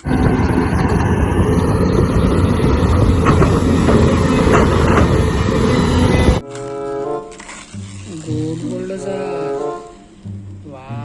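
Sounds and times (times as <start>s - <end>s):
heavy engine rumble: 0.0s - 6.4s.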